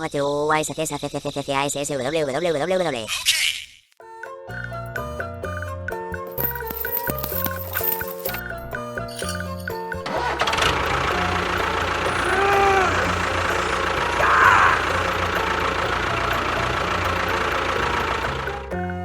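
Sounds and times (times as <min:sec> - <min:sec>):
engine running: 0:09.2 - 0:19.0.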